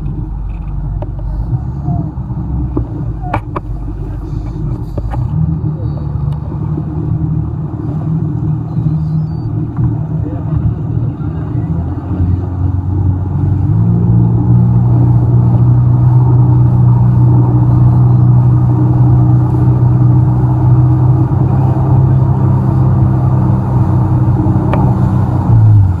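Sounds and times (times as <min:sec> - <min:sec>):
jet ski engine running: 0:00.0 - 0:26.0.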